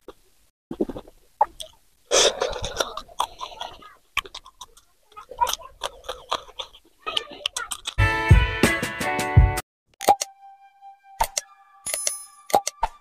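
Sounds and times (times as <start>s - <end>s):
chewing and crunching chilli pepper: 0.9s - 8.0s.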